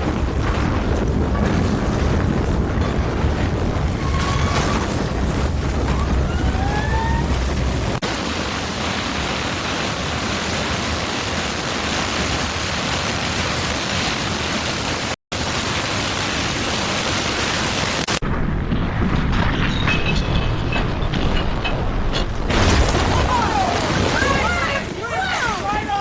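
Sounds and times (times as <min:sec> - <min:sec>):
low rumble: 0:00.0 - 0:08.5, 0:18.2 - 0:23.7
loud steady rushing noise: 0:04.8 - 0:18.3.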